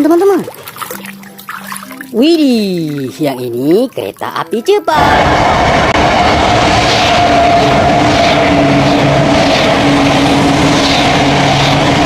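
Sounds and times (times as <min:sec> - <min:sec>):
train rushing noise: 0:04.8 - 0:12.0.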